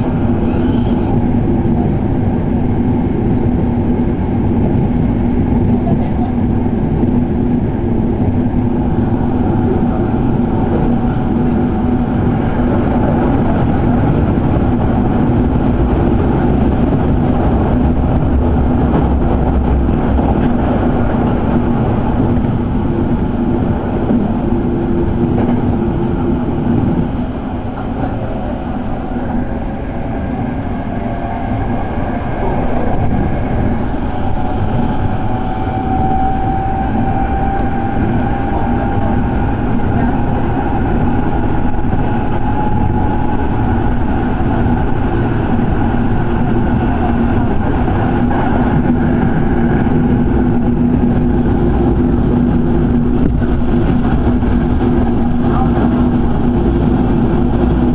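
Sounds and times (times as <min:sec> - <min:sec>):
train motor hum: 0:00.0 - 0:57.9
train wheels rumbling on rail: 0:00.0 - 0:57.9
rising motor whine: 0:28.8 - 0:57.9.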